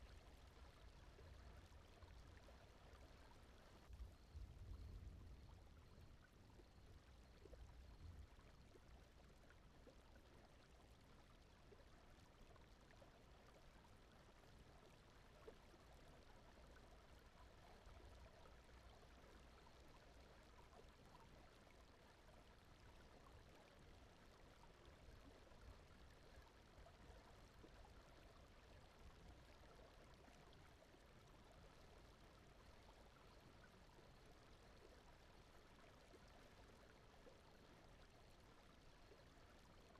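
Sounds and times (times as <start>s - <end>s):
faint brown noise: 0.0s - 39.9s
flowing water: 0.0s - 39.9s.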